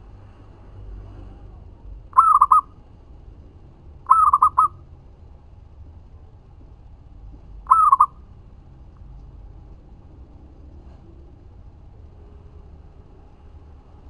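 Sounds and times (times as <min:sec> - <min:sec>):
dove cooing: 0:02.2 - 0:02.7, 0:04.1 - 0:04.8, 0:07.7 - 0:08.2.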